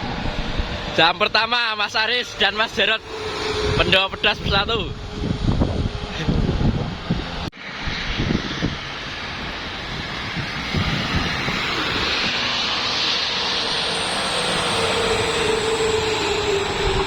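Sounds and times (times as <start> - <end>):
truck engine rumble: 0.0 - 7.5
tyre and air rushing noise: 1.6 - 17.0.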